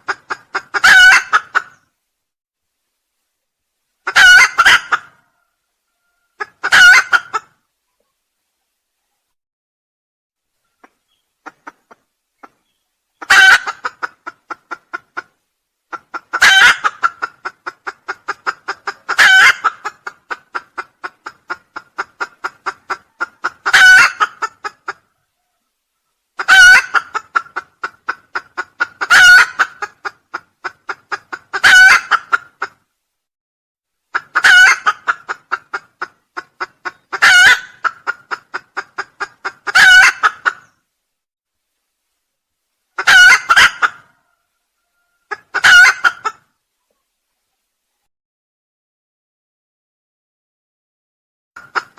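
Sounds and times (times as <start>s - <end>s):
junglefowl crowing: 0.1s - 1.8s, 4.0s - 7.5s, 13.2s - 15.0s, 15.9s - 30.0s, 31.3s - 32.8s, 34.2s - 35.4s, 36.6s - 38.6s, 39.4s - 40.7s, 43.0s - 46.4s.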